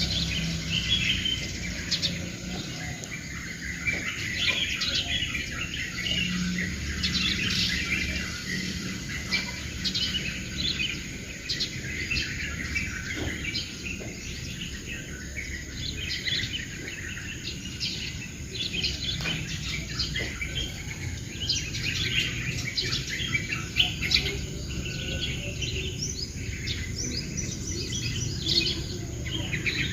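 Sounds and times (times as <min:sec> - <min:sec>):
songbirds chirping: 0:00.0 - 0:29.9.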